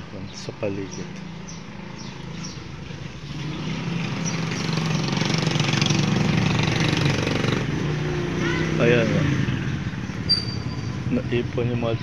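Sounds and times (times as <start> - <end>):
small engine running: 3.2 - 8.4.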